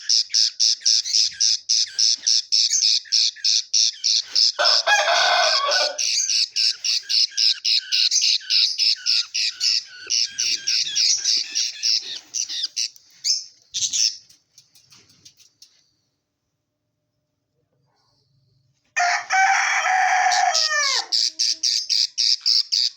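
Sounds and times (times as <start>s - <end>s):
budgerigars chirping: 0.0s - 14.3s, 20.4s - 22.9s.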